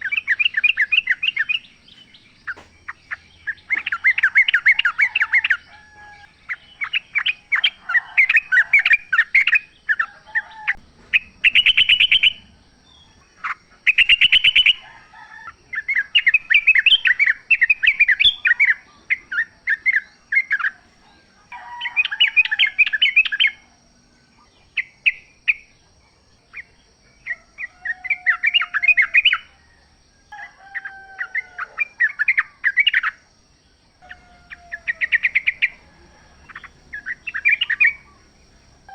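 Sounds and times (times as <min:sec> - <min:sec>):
bird chattering notes: 0:00.0 - 0:05.7, 0:34.1 - 0:38.4.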